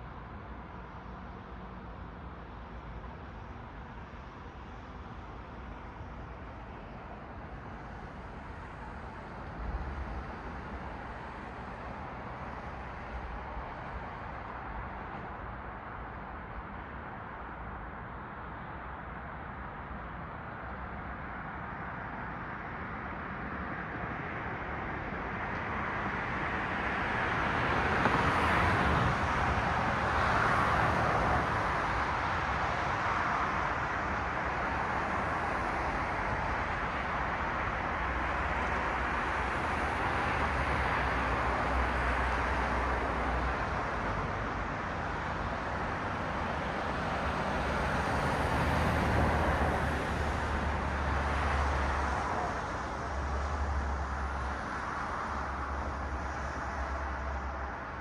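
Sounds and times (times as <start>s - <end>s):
cars passing: 24.0s - 58.0s.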